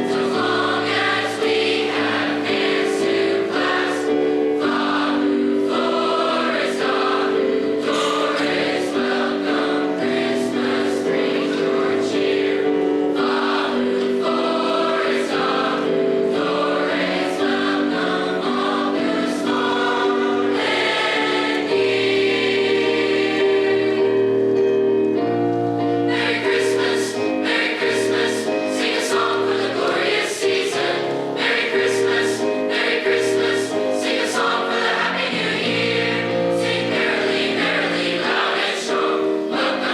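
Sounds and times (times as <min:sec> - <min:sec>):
choir singing in harmony: 0:00.0 - 0:39.9.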